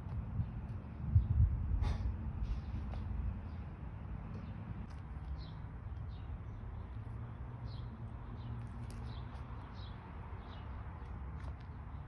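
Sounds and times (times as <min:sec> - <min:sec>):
small birds chirping: 0:02.4 - 0:12.0.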